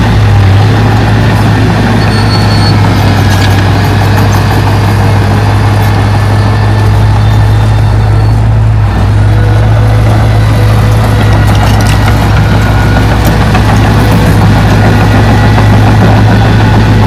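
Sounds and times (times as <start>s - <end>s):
heavy diesel machinery droning: 0.0s - 17.0s.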